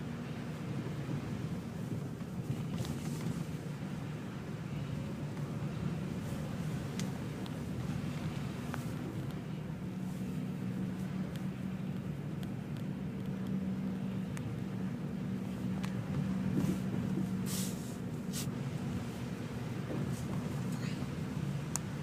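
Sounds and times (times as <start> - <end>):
vehicle engine humming: 0.0 - 22.0
short hisses: 17.4 - 18.5.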